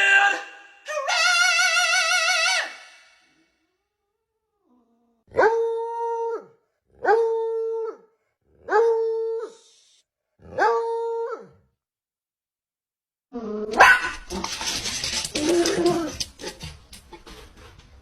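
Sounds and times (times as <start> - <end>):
dog howling: 13.6 - 16.7.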